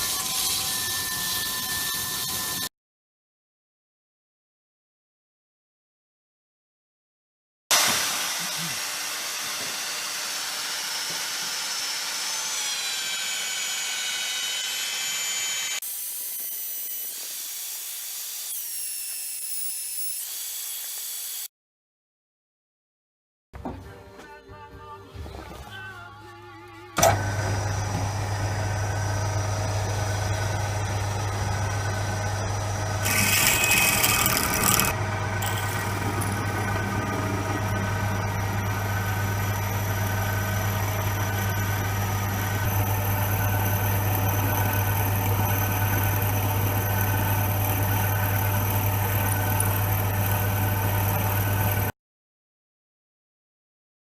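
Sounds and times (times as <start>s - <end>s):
workshop machine humming: 26.9s - 51.9s.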